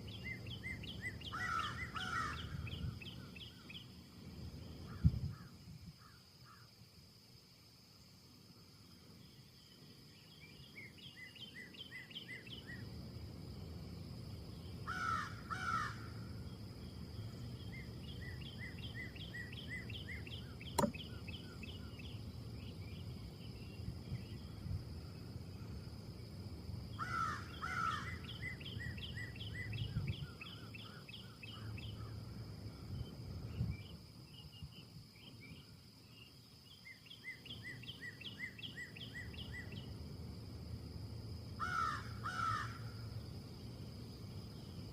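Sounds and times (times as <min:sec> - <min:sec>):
wind gusting through trees: 0:00.0 - 0:44.9
harsh bird calls: 0:00.2 - 0:03.8
sharp click: 0:20.8 - 0:21.0.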